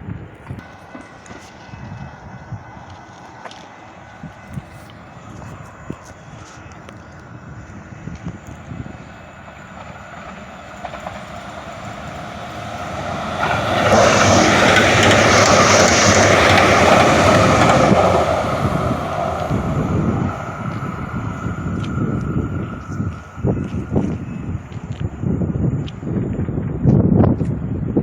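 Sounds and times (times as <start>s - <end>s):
loud passing vehicle: 9.8s - 24.0s.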